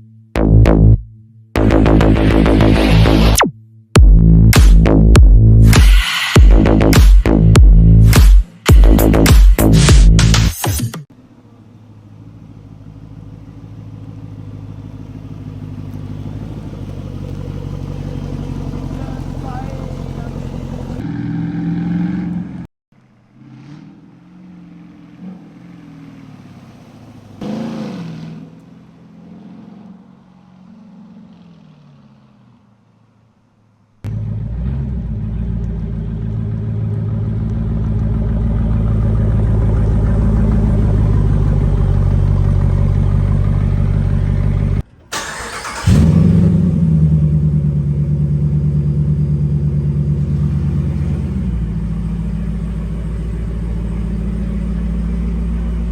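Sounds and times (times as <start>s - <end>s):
eight-cylinder engine revving: 1.6s - 3.4s, 4.0s - 32.7s, 34.0s - 55.9s
loud lumpy engine idle: 11.2s - 21.0s, 34.1s - 45.8s, 46.8s - 55.9s.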